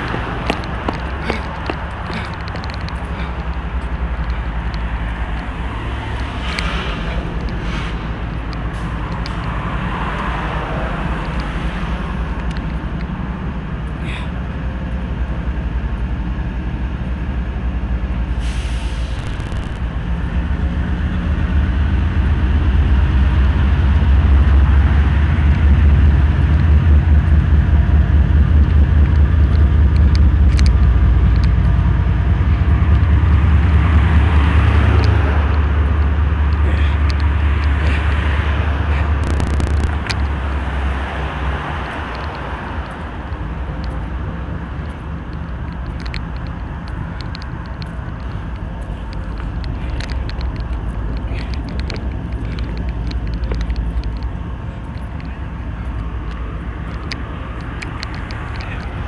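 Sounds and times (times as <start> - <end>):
freight train rumbling: 0.0 - 59.0
short air hiss: 18.4 - 19.6.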